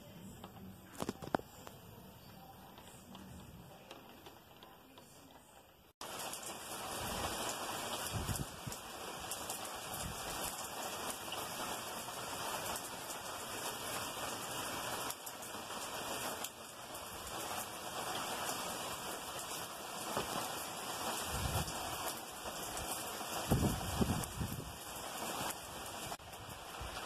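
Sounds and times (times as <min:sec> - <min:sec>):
heavy rain pouring: 0:06.0 - 0:27.0.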